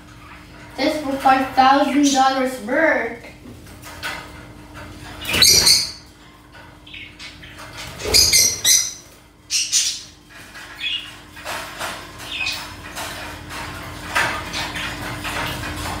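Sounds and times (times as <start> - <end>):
birds squawking and chirping: 0.0 - 2.7, 3.8 - 16.0
wire cage rustling and clicking: 3.6 - 9.4, 10.1 - 16.0.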